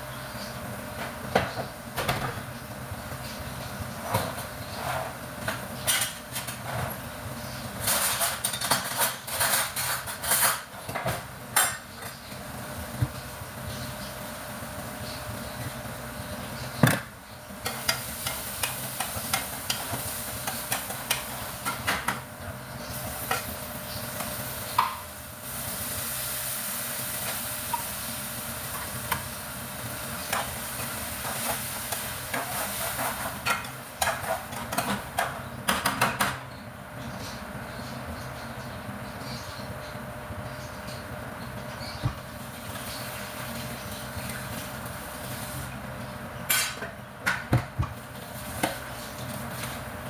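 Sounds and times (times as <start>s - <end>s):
food sizzling in frying pan: 17.5s - 35.2s, 42.2s - 46.0s, 47.9s - 50.0s.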